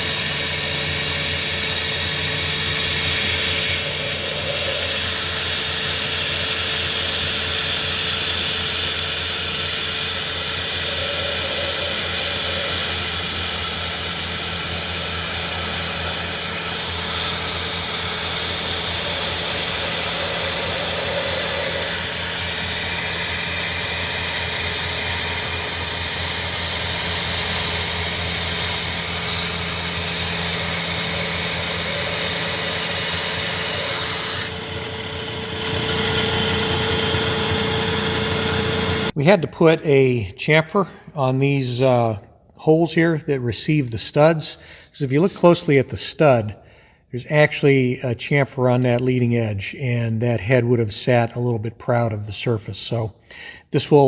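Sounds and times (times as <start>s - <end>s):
milling machine humming: 0.0s - 39.2s.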